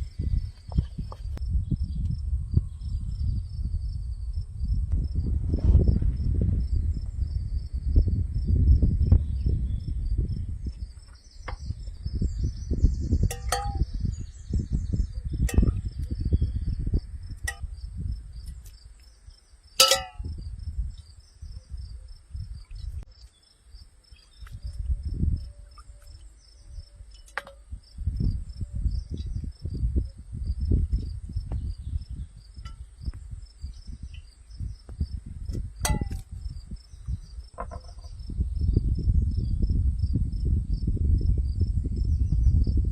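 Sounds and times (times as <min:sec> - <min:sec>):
low rumbling: 0:00.0 - 0:18.4
crickets chirping: 0:00.0 - 0:42.9
sharp clinks: 0:13.3 - 0:13.9, 0:19.8 - 0:20.3, 0:35.9 - 0:36.2.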